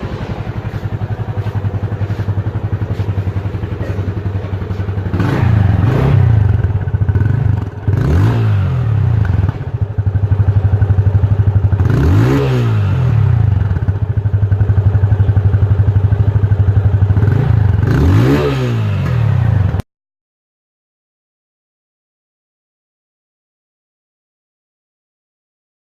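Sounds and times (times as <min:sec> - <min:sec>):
motorcycle idling: 0:00.0 - 0:18.1, 0:18.9 - 0:19.8
motorcycle throttle blips: 0:00.0 - 0:18.3.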